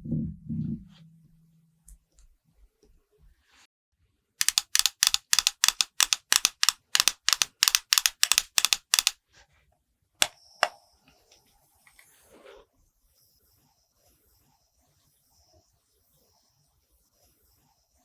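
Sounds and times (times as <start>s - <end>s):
quick makeup tapping: 4.4s - 9.2s
sharp clicks: 4.4s - 9.2s.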